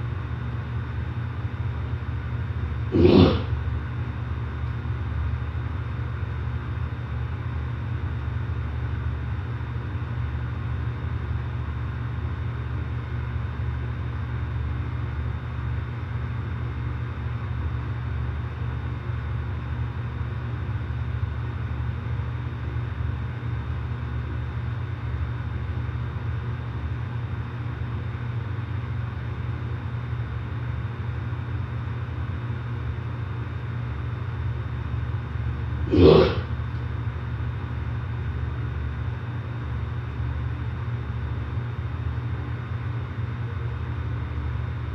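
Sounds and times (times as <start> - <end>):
air conditioner units humming: 0.0 - 44.9.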